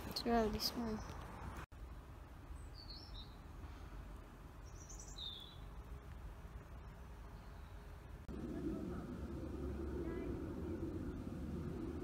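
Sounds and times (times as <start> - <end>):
faint outdoor background noise: 0.0 - 12.0.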